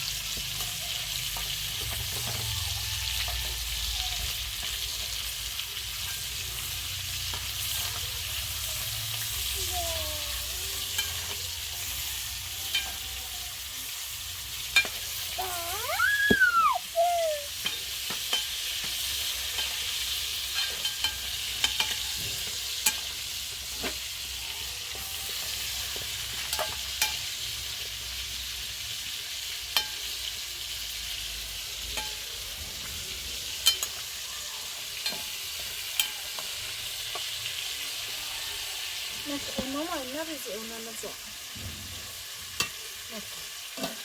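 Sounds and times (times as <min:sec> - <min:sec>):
food sizzling in a pan: 0:00.0 - 0:44.0
short high cry: 0:15.4 - 0:17.6.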